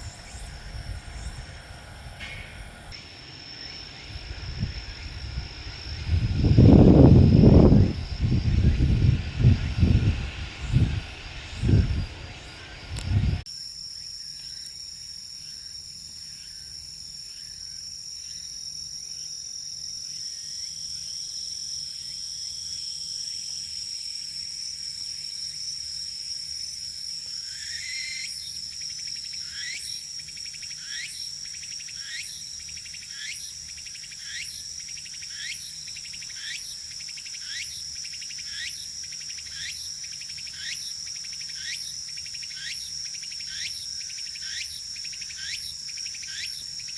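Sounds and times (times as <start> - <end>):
insect rising chirp: 0.0 - 13.4
insects trilling: 0.0 - 14.8, 15.4 - 46.9.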